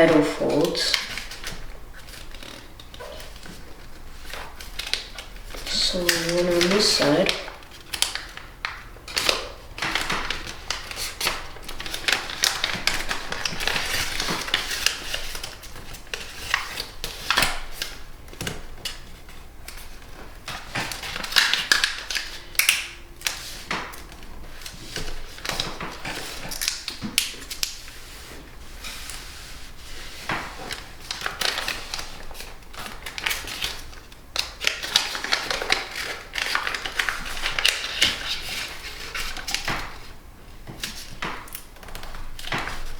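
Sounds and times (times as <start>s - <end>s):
paper being folded and creased: 0.0s - 8.5s, 9.1s - 18.0s, 23.2s - 40.0s.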